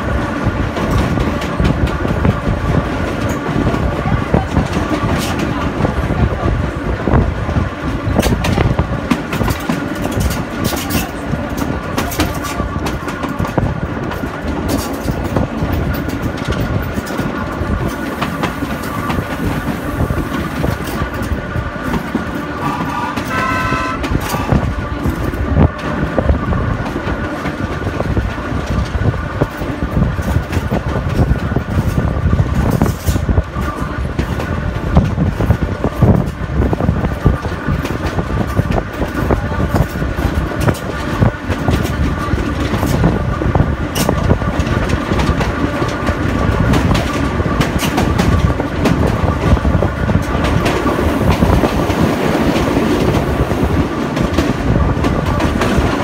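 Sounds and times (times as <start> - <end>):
train wheels rumbling on rails: 0.0 - 56.0
brief high-pitched tone: 22.6 - 24.6.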